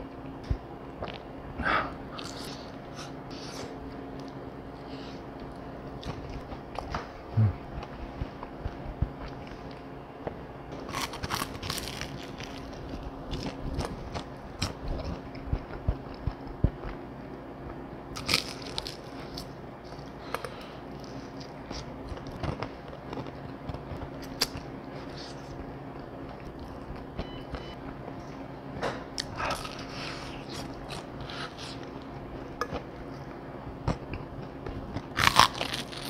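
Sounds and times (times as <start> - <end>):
crunching fried chicken: 10.8 - 16.3, 18.2 - 25.3, 34.9 - 36.0.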